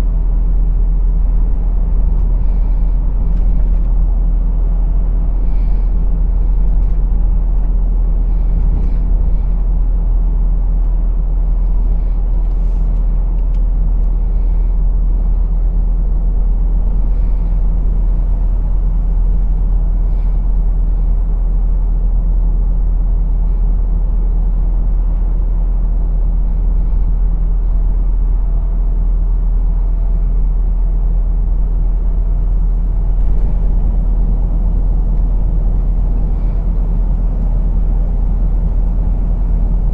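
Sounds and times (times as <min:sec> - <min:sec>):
road noise: 0:00.0 - 0:13.4, 0:14.2 - 0:21.4, 0:32.3 - 0:39.9
diesel engine drone: 0:00.0 - 0:39.9.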